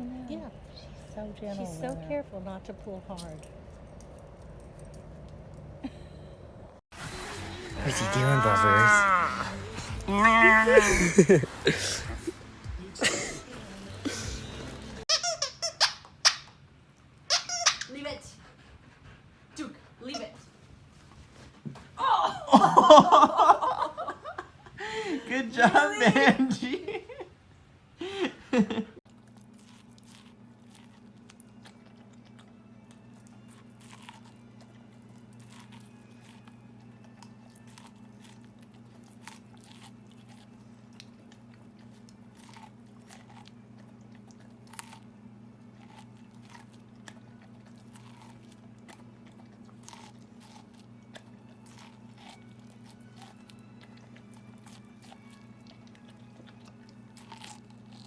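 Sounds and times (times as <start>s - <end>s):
puppy chewing and crunching: 0.8s - 5.8s, 29.0s - 58.0s
steady low hum: 17.9s - 58.0s.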